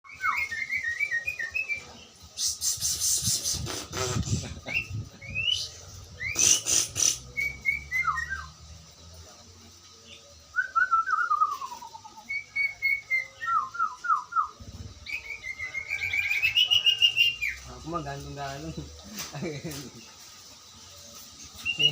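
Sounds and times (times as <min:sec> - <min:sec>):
bird whistling notes: 0:04.6 - 0:08.6, 0:10.5 - 0:17.6, 0:21.6 - 0:21.9
bird harsh chattering: 0:06.2 - 0:07.5.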